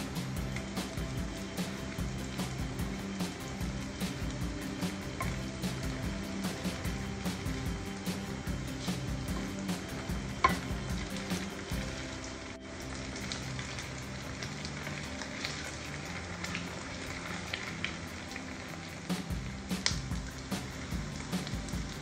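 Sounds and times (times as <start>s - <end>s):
wooden spatula turning food: 0.0s - 12.3s
fritters sizzling in hot oil: 0.0s - 22.0s.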